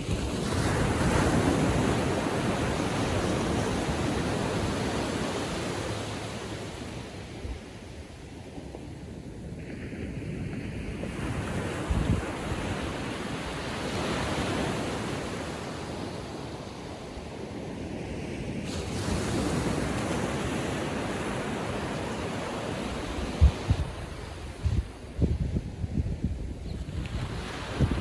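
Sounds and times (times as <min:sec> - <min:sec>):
small waves breaking on beach: 0:00.0 - 0:25.2, 0:26.8 - 0:28.0
wind buffeting microphone: 0:07.4 - 0:13.8, 0:18.6 - 0:28.0.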